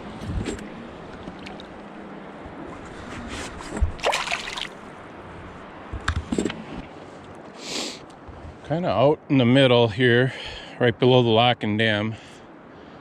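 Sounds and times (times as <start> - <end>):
fish splashing into water: 4.0 - 4.9.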